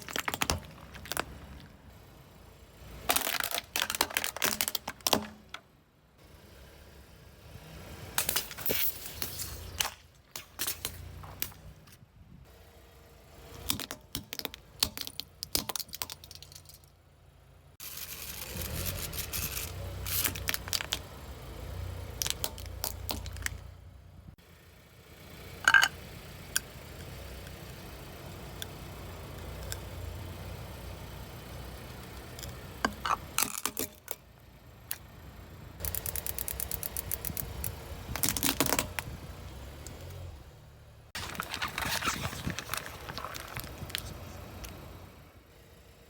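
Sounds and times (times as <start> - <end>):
tyre crushing crunchy objects: 0.0 - 1.8, 41.2 - 44.9
car engine running low: 0.0 - 46.0
cracks and snaps: 3.1 - 5.5.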